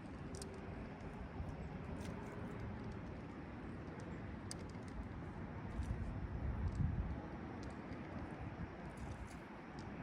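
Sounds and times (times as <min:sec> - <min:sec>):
wind on microphone: 0:05.8 - 0:07.3.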